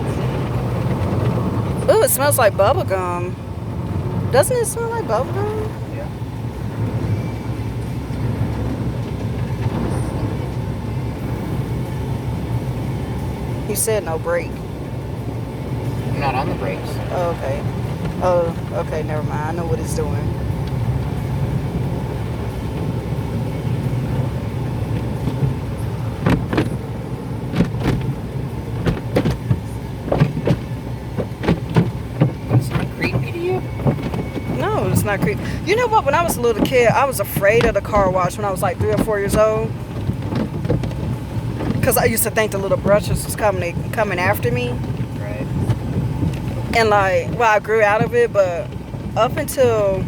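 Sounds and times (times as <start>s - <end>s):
car wash rumble inside car: 0.0s - 50.0s
water splashes: 15.1s - 50.0s.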